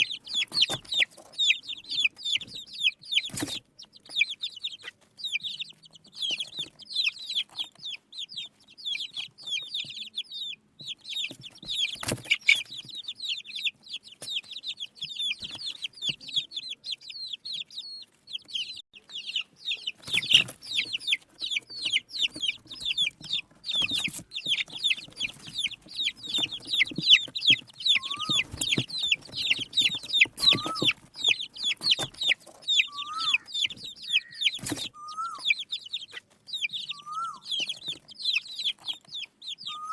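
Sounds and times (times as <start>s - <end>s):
baby chicks peeping: 0.0s - 39.9s
lower rising calls: 27.9s - 28.5s, 32.8s - 35.6s, 36.9s - 37.5s, 39.6s - 39.9s.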